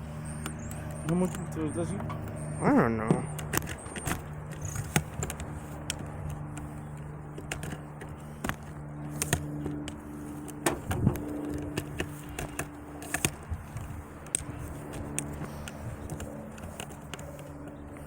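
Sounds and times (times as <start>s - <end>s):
clicks and knocks of parts: 3.2s - 18.0s
engine idling: 5.6s - 13.2s.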